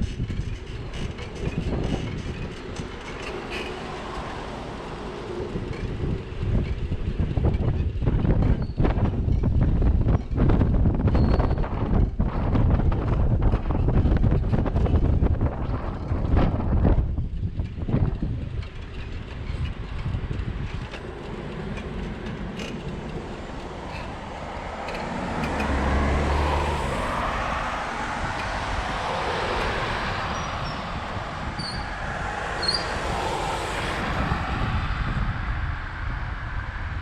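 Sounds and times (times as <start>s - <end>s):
street traffic: 0.0s - 37.0s
vehicle passing with deep rumble: 12.5s - 37.0s.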